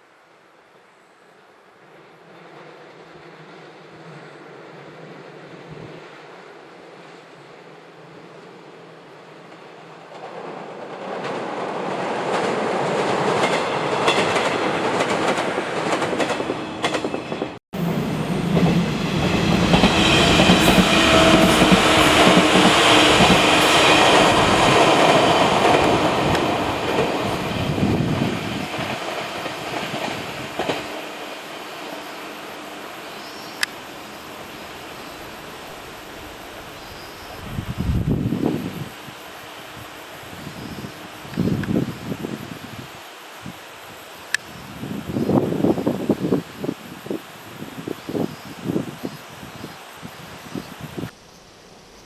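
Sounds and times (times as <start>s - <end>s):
train wheels clacking over rail joints: 18.4s - 31.1s.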